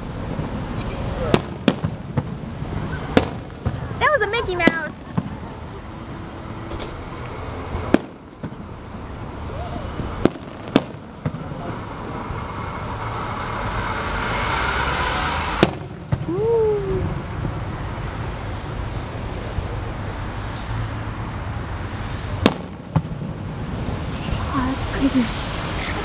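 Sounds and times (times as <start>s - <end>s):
firework hiss: 0.0s - 17.6s, 21.8s - 26.0s
firework bangs: 0.0s - 19.8s, 22.2s - 26.0s.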